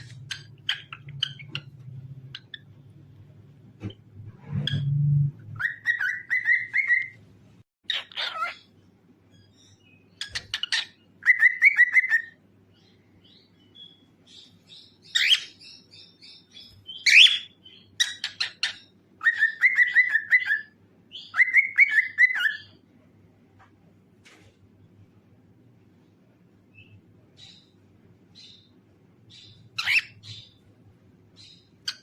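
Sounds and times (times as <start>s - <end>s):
cockatiel whistling and warbling: 5.5s - 7.2s, 10.3s - 12.4s, 16.9s - 22.8s, 29.8s - 30.4s.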